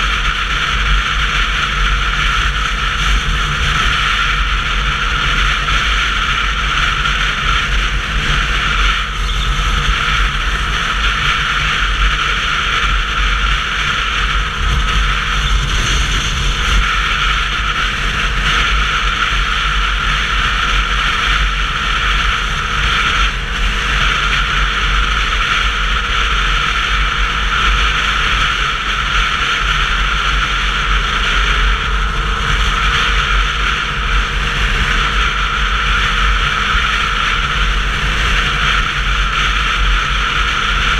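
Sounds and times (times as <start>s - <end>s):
motorcycle road noise rumble: 0.0s - 40.9s
wind rushing over microphone: 0.0s - 40.9s.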